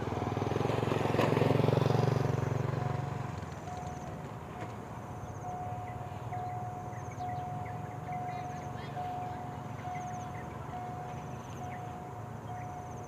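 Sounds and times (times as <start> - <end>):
diesel locomotive passing: 0.0 - 13.0
level crossing warning tone: 2.8 - 4.2, 5.2 - 13.0.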